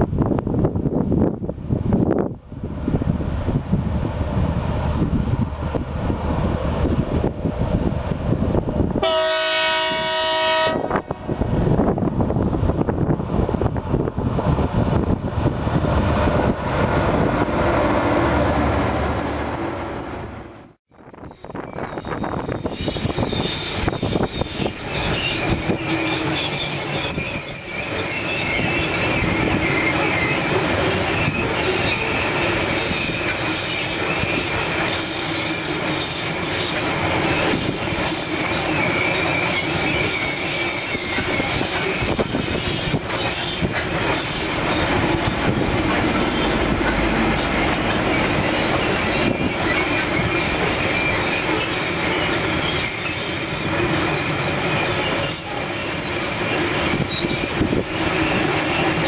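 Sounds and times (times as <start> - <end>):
wheels squealing whine: 21.0 - 59.0.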